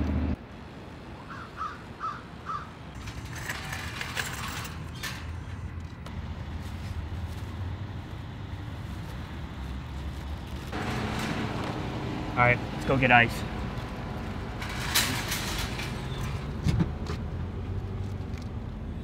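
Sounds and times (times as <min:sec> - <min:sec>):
traffic rumble: 0:00.0 - 0:19.0
bird calling: 0:01.2 - 0:02.9.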